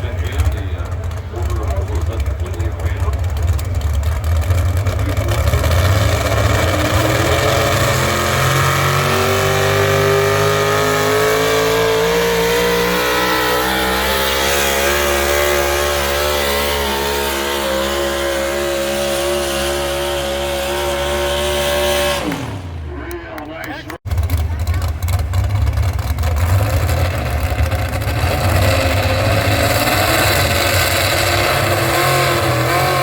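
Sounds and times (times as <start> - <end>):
tractor engine under full load: 0.0 - 33.0.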